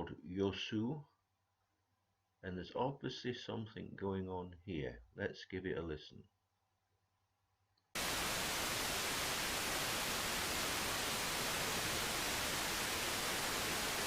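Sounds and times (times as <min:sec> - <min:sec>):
radio static hiss: 0:08.0 - 0:14.0.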